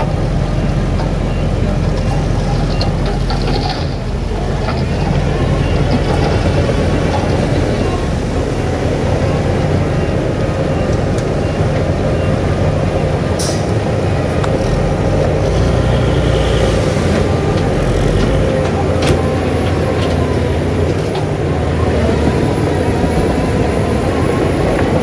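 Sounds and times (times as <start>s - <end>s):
diesel earthmoving machinery running: 0.0s - 25.0s.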